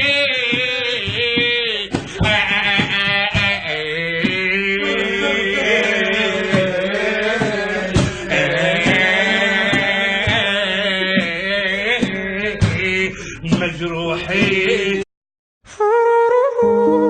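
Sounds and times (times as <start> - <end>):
drum strokes: 0.0 - 14.8
person singing ornamented notes: 16.0 - 17.0.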